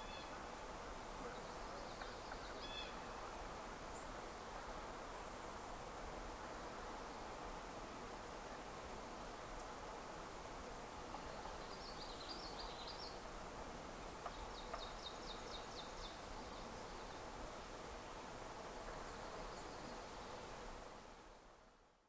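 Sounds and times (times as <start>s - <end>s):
distant high-pitched bird calls: 1.4s - 3.1s.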